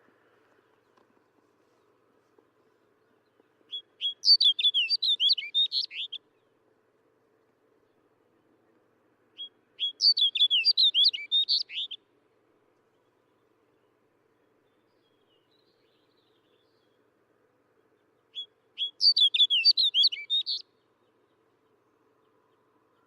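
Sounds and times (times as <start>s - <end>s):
bird singing warbling notes: 18.4s - 20.7s.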